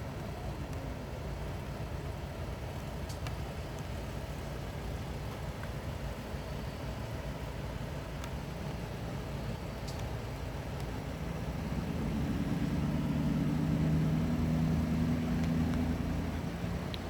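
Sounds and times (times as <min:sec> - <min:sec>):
faint ticks: 0:02.8 - 0:04.0, 0:09.8 - 0:11.0.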